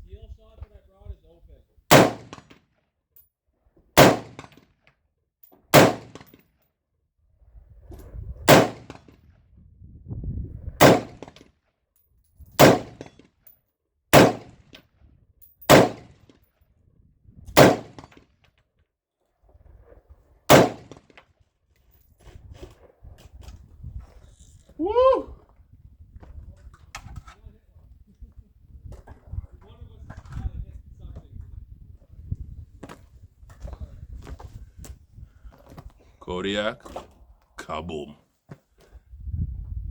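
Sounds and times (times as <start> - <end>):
ringing echo of gunshots: 1.9 - 2.5, 4.0 - 4.5, 5.8 - 6.3, 8.5 - 9.0, 10.8 - 11.1, 12.6 - 13.0, 14.2 - 14.5, 15.7 - 16.1, 17.6 - 18.0, 20.5 - 20.9
rifle shots: 1.9 - 2.6, 4.0 - 4.6, 5.7 - 6.4, 8.5 - 9.2, 10.8 - 11.3, 12.6 - 13.2, 14.1 - 14.6, 15.7 - 16.2, 17.6 - 18.1, 20.5 - 21.0.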